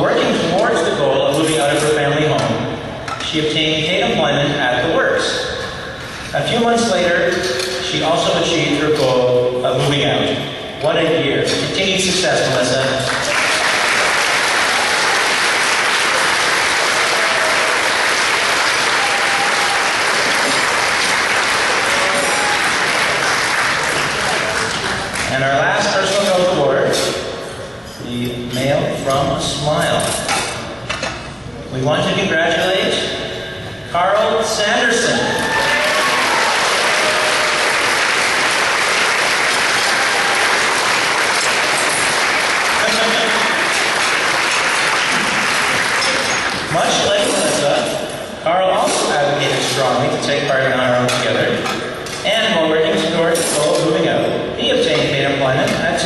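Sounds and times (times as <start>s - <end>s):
audience applauding: 13.1s - 25.3s, 35.4s - 46.7s
faint whistles and cheers: 18.8s - 20.4s, 35.2s - 37.8s.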